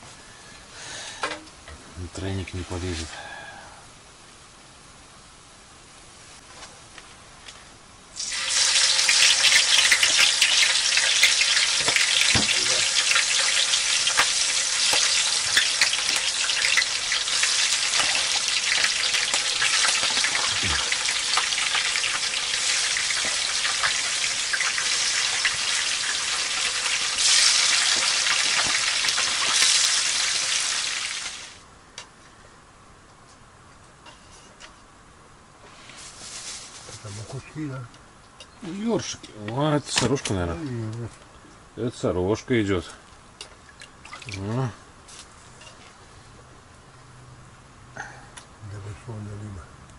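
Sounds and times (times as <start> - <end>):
fish sizzling in hot oil: 8.1 - 31.6.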